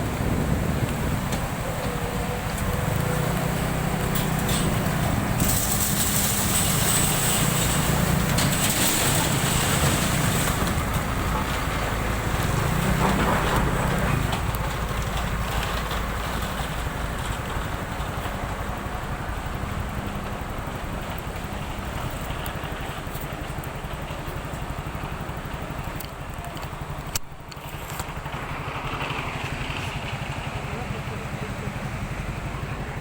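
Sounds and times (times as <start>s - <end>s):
wind noise on microphone: 0.0s - 3.3s
scooter engine running: 0.0s - 33.0s.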